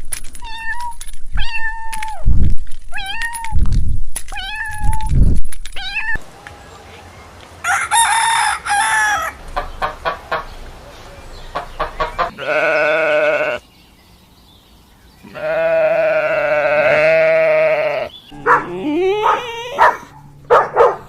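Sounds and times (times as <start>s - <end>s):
chickens clucking: 6.2s - 12.6s
rooster crowing: 7.6s - 9.4s.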